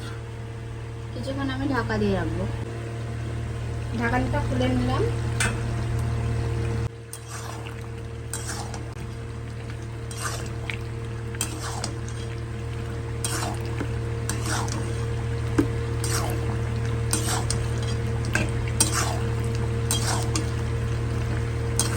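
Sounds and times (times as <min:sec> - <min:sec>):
steady low hum: 0:00.0 - 0:21.9
metal spatula scraping a pan: 0:07.1 - 0:07.6, 0:08.3 - 0:08.9, 0:10.1 - 0:10.5, 0:11.4 - 0:12.3, 0:13.2 - 0:15.1, 0:16.0 - 0:16.4, 0:17.1 - 0:20.6.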